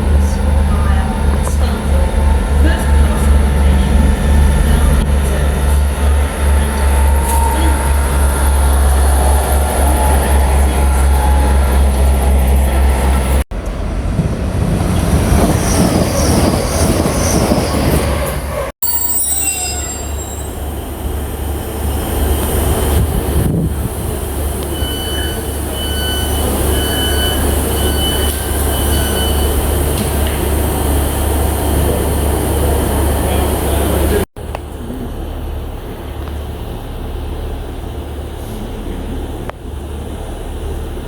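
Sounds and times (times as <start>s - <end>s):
train rumbling through station: 0.0s - 41.0s
train wheels squealing: 6.5s - 12.6s, 15.4s - 20.8s, 24.7s - 30.3s.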